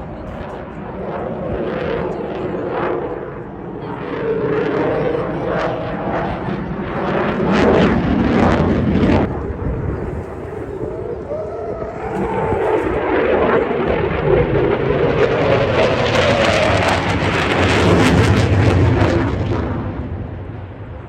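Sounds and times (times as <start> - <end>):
jet flying by roaring: 0.0 - 21.0.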